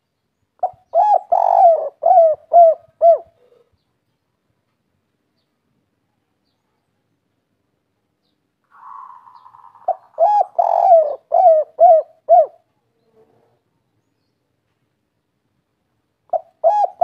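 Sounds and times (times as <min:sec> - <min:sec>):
dove cooing: 0:00.6 - 0:03.7, 0:08.7 - 0:13.6, 0:16.3 - 0:17.0.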